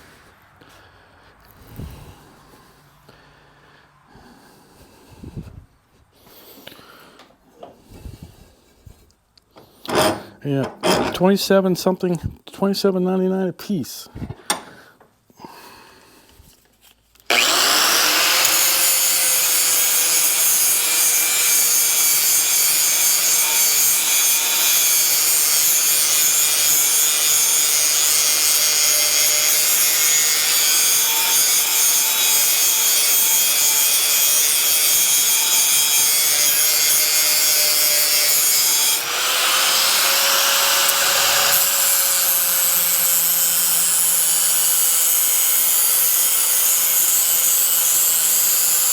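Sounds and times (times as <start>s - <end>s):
electric grinder grinding metal blade: 17.3s - 48.9s
grinder motor whine: 17.3s - 48.9s.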